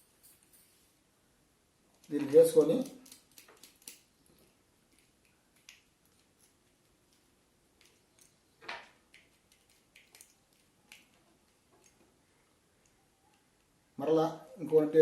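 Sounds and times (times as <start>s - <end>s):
small parts clicking and tapping: 1.9s - 13.8s.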